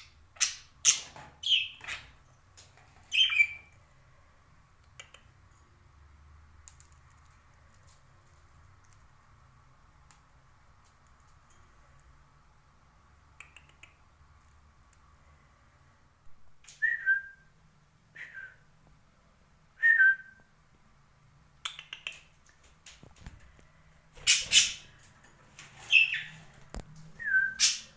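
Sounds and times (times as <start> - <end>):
parakeet squawking: 3.1 - 3.7, 24.2 - 24.9, 25.8 - 26.4, 27.5 - 27.9
parakeet whistled calls: 3.1 - 3.7, 24.2 - 24.9, 25.9 - 26.4, 27.2 - 27.9.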